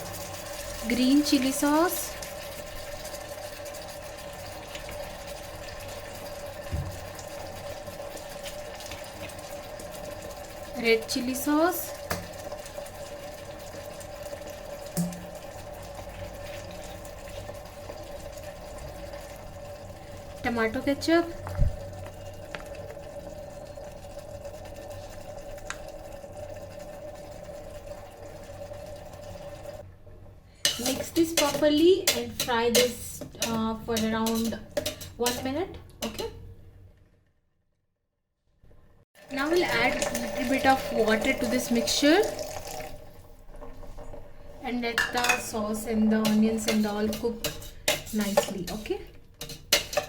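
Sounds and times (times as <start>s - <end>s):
vegetables sizzling in oil: 0.0s - 29.8s, 39.3s - 50.0s
electric kettle humming: 0.0s - 30.0s, 39.2s - 46.6s
soft frying hiss: 0.0s - 36.9s, 39.2s - 50.0s.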